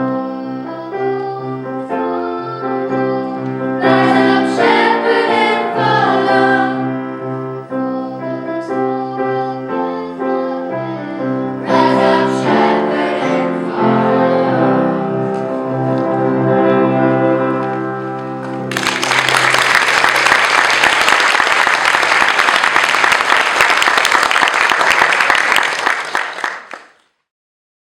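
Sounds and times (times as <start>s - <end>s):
choir singing: 0.0s - 17.6s
audience applause: 18.6s - 27.0s.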